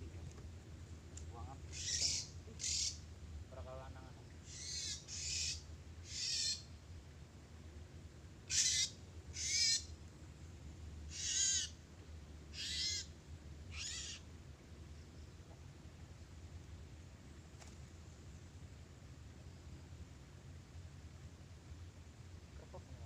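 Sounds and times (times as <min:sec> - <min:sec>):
bird high calls: 0:01.6 - 0:03.1, 0:04.4 - 0:06.8, 0:08.4 - 0:10.0, 0:11.1 - 0:11.8, 0:12.5 - 0:14.3.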